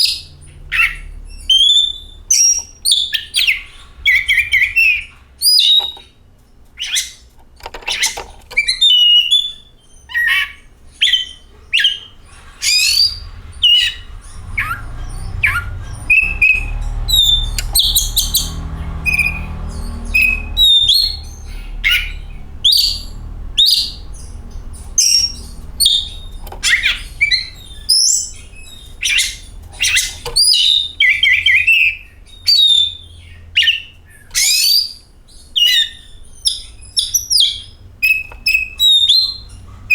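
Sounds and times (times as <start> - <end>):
magpie-robin singing: 0.0 - 39.9
low rumble: 10.8 - 31.5.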